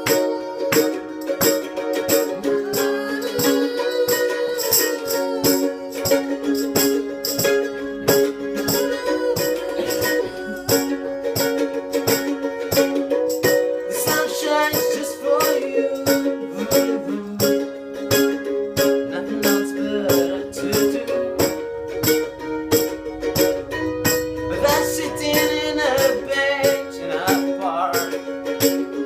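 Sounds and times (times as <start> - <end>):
strummed string instrument chords: 0.0 - 29.0
wavering melody line: 19.6 - 27.6.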